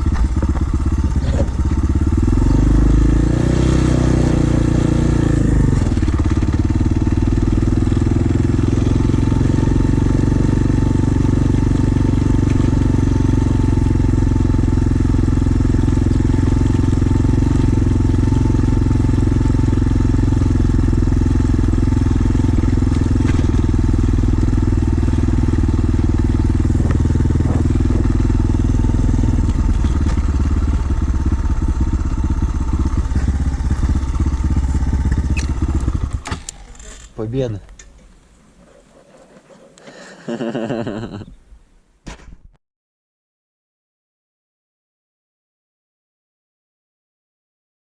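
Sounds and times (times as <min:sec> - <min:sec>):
pit bike engine running: 0:00.0 - 0:38.1.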